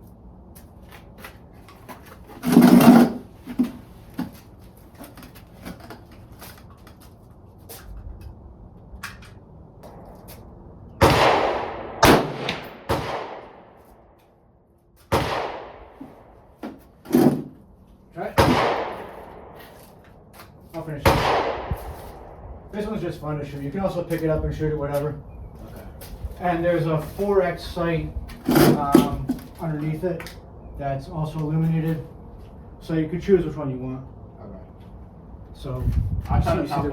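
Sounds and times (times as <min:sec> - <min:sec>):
gunshots with ringing tail: 0:11.0 - 0:13.7, 0:15.1 - 0:15.8, 0:18.3 - 0:19.6, 0:21.0 - 0:21.7.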